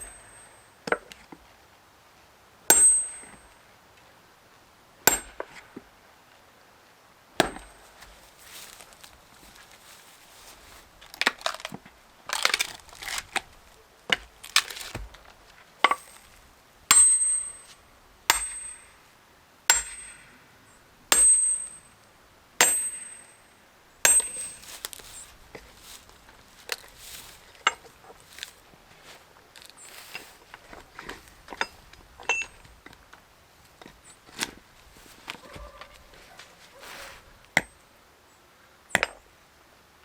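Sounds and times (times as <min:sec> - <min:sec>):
sledgehammer ringing on metal wedge: 0:02.7 - 0:03.4, 0:05.1 - 0:05.4, 0:16.9 - 0:17.7, 0:18.3 - 0:19.0, 0:19.7 - 0:20.4, 0:21.1 - 0:21.9, 0:22.6 - 0:24.6
wood crunching under knocks: 0:07.4 - 0:16.4, 0:24.1 - 0:36.6.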